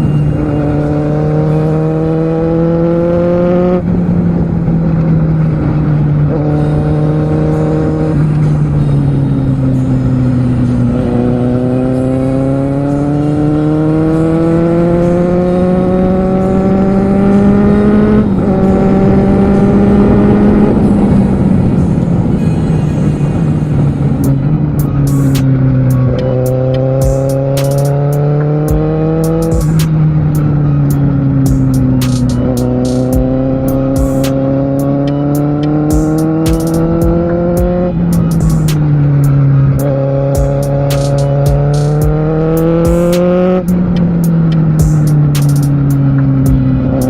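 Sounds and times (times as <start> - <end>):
motorcycle engine accelerating: 0.0 - 47.0.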